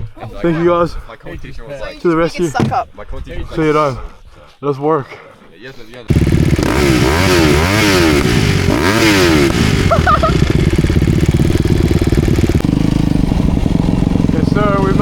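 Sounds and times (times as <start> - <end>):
dirt bike engine revving: 6.1 - 15.0.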